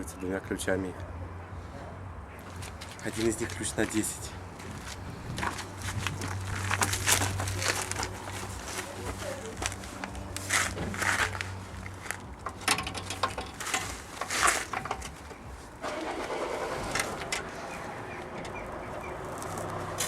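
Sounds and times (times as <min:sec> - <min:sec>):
steady rushing noise: 0:00.4 - 0:20.0
wrench clinking on bolt: 0:12.4 - 0:15.2.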